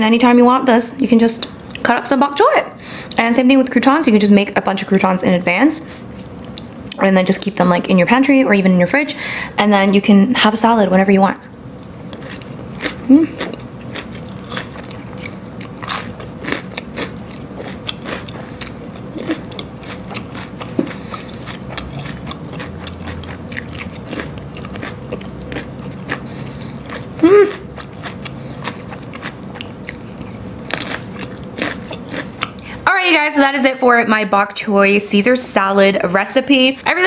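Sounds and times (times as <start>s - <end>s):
crunchy chewing: 11.8s - 32.7s
person humming: 13.1s - 13.4s, 27.2s - 27.6s.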